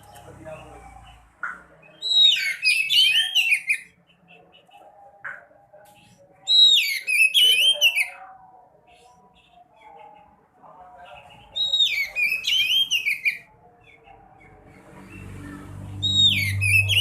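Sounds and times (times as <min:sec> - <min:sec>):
songbird twittering whistles: 0:01.9 - 0:03.9, 0:11.6 - 0:13.5.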